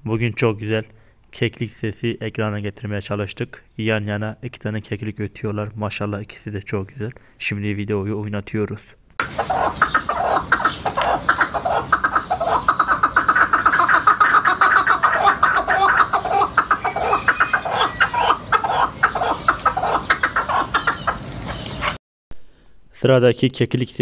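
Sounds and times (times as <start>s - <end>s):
partridges clucking: 9.2s - 22.0s.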